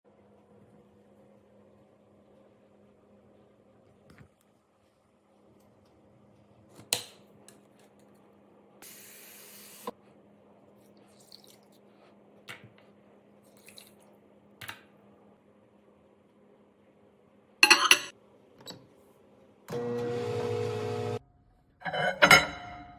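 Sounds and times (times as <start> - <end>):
dishware clinking: 17.6 - 18.1, 21.8 - 22.9.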